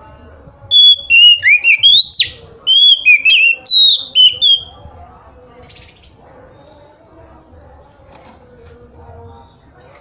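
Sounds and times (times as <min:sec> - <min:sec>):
bird singing whistled phrases: 0:00.7 - 0:04.8.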